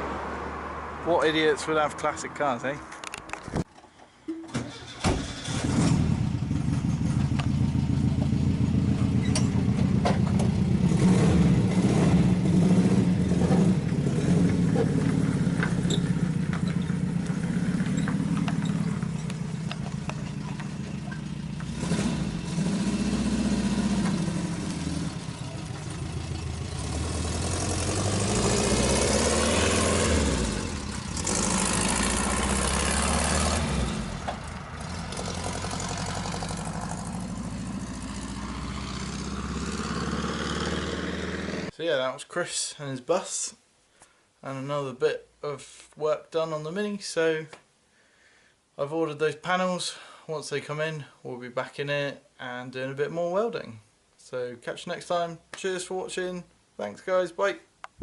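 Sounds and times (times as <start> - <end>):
engine starter clicks: 4.4 - 6.0
van engine running: 4.7 - 40.3.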